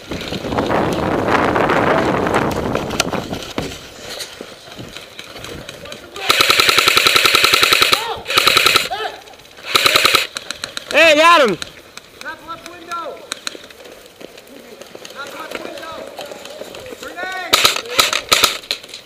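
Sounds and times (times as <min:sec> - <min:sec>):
airsoft gun firing full auto: 0:06.2 - 0:08.9, 0:09.6 - 0:10.5, 0:17.5 - 0:18.8.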